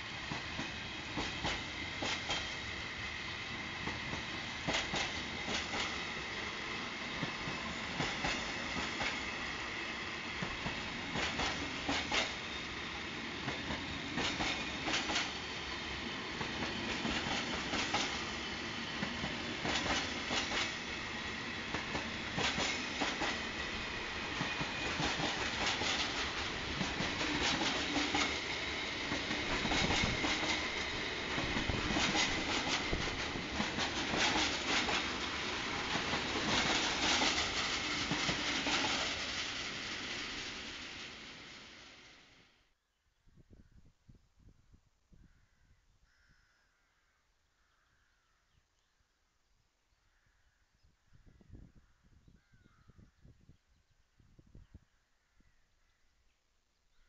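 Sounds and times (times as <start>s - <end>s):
freight train rumbling: 0.0s - 42.6s
wheels clicking over rail joints: 13.4s - 15.4s, 24.4s - 39.3s.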